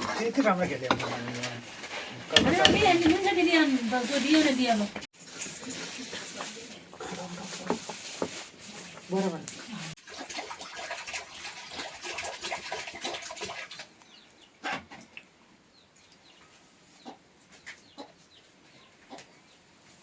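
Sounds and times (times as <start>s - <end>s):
scratching and tapping: 2.3s - 3.5s
chickens clucking: 16.4s - 19.4s.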